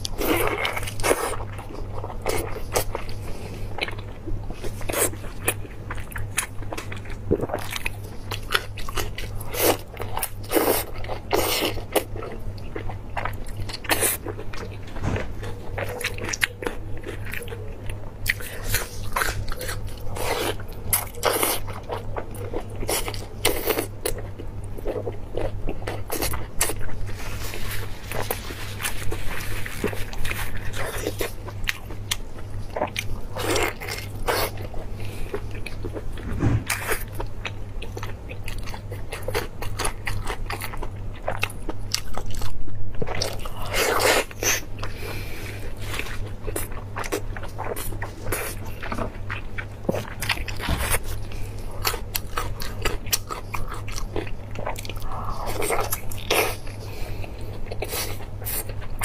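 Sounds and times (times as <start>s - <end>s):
low electrical hum: 0.0s - 59.0s
woman chewing: 37.8s - 59.0s.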